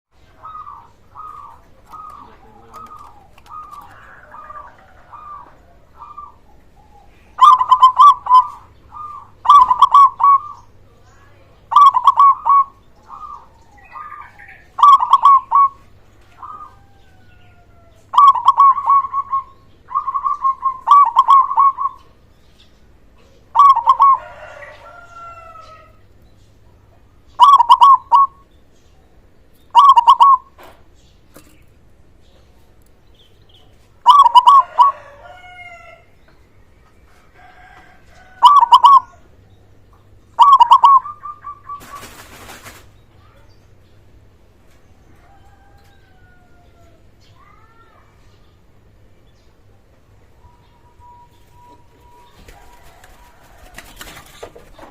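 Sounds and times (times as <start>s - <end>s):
dove cooing: 0.2s - 10.7s, 11.7s - 22.1s, 23.5s - 26.0s, 27.4s - 28.4s, 29.7s - 30.7s, 34.0s - 36.0s, 37.6s - 39.3s, 40.4s - 42.8s.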